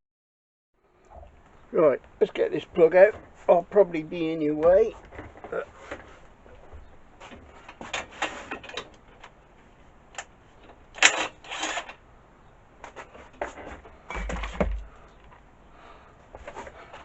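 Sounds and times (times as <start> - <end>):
low thud: 14.1 - 15.0.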